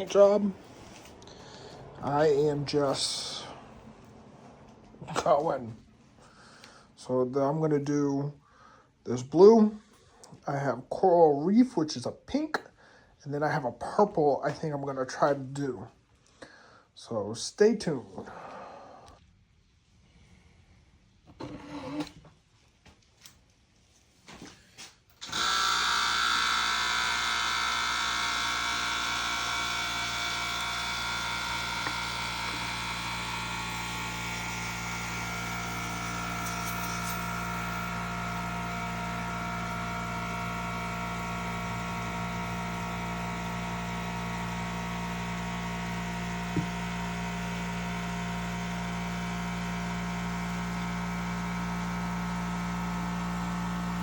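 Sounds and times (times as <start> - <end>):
air compressor running: 0.0 - 5.6, 25.2 - 54.0.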